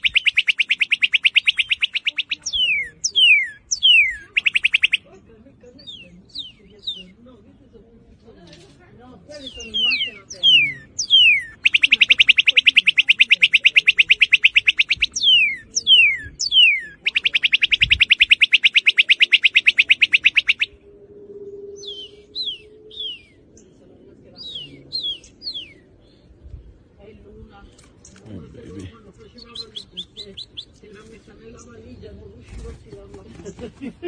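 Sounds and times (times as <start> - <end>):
cardinal singing whistles and trills: 0.0 - 7.3, 9.3 - 26.6, 29.2 - 30.8.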